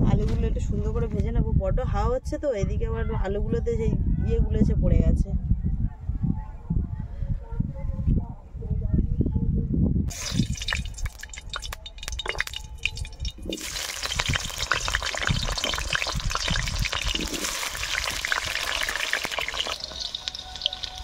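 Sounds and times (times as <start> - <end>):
potatoes sizzling in hot oil: 10.1 - 21.0.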